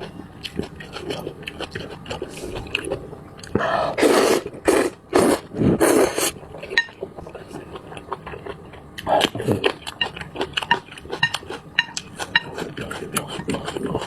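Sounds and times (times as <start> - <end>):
eating sounds: 0.0 - 14.0
utensils clinking against bowl: 6.6 - 7.1, 9.7 - 14.0.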